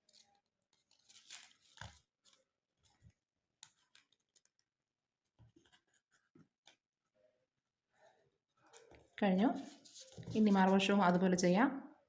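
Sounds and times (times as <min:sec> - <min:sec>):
paper rustling and tapping: 0:00.1 - 0:04.7.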